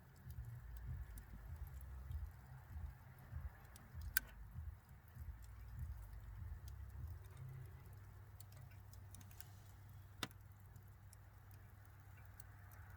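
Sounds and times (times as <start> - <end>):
bonfire crackling and popping: 0.0 - 12.9
low rumble: 0.3 - 8.3.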